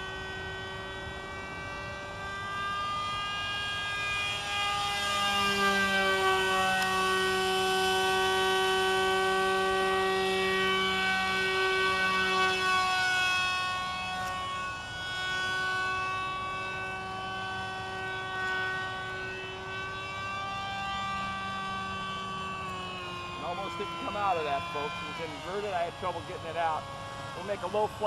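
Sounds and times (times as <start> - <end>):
model airplane motor whine: 0.0 - 28.0.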